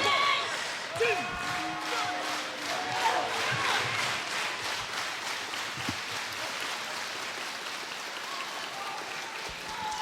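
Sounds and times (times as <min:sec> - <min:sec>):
crowd applause: 0:00.0 - 0:10.0.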